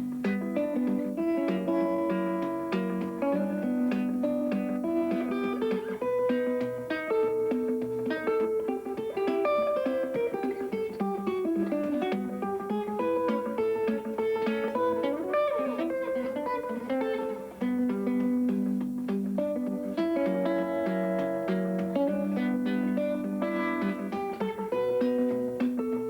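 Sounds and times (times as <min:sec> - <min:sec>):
plucked guitar melody: 0:00.0 - 0:26.0.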